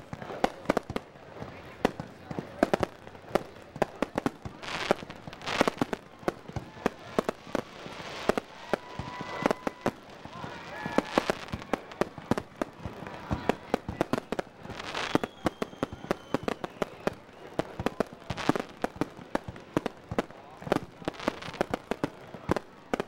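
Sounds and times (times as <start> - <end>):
firework bangs: 0.0 - 23.0
faint falling whistle: 15.0 - 17.5.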